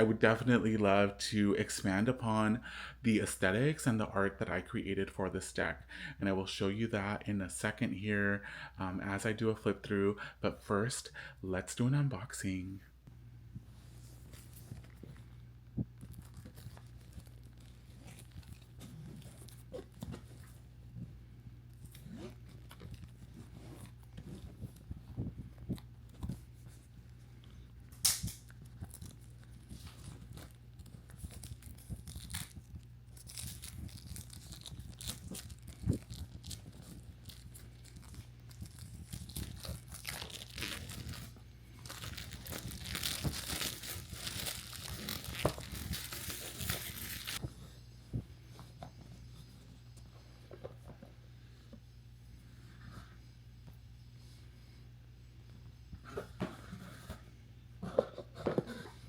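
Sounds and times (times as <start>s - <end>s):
packaging tearing and crinkling: 16.0s - 20.0s, 28.1s - 47.4s.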